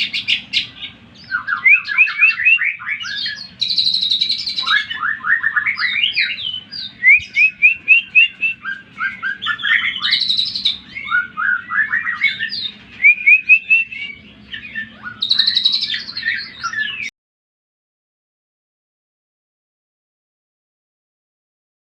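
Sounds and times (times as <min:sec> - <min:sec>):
bird singing trills and whistles: 0:00.0 - 0:17.1.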